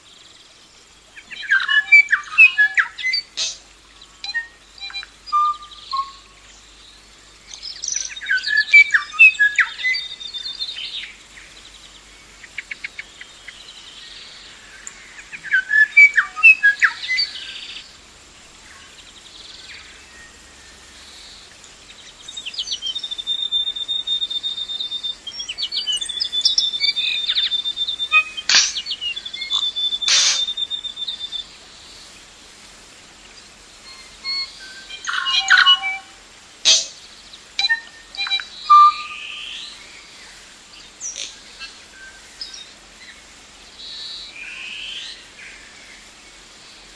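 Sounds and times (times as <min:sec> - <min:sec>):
birds chirping and whistling: 0:01.2 - 0:03.6, 0:04.2 - 0:11.8, 0:12.5 - 0:17.9, 0:19.0 - 0:32.1, 0:33.4 - 0:40.2
high bird trill: 0:22.3 - 0:31.5, 0:33.8 - 0:37.0, 0:37.6 - 0:39.8.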